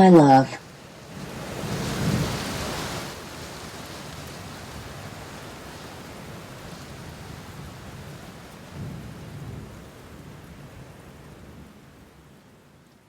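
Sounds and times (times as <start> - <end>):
rain hissing: 0.1 - 8.9
low rumble of thunder: 1.6 - 2.6, 7.1 - 12.0.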